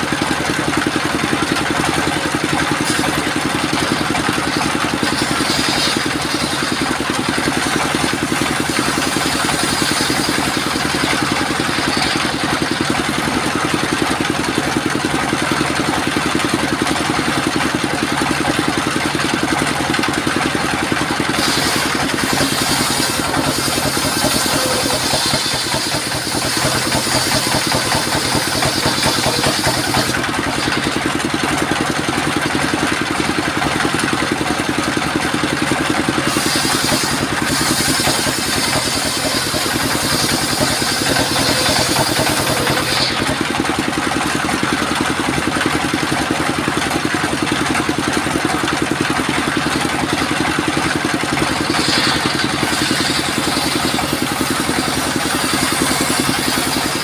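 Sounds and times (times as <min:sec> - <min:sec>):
circular saw cutting wood: 0:00.0 - 0:33.0, 0:35.9 - 0:45.2, 0:49.3 - 0:57.0
sawmill engine running: 0:00.0 - 0:57.0.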